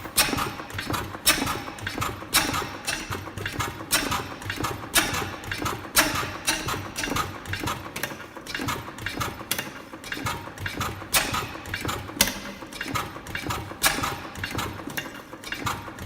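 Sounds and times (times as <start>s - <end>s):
oil engine clattering: 0.0s - 16.0s.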